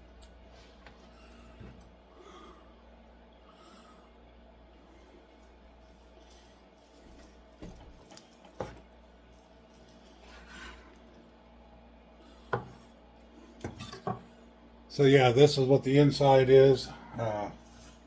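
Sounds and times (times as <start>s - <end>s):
soft rubbing rustle: 5.4s - 8.5s.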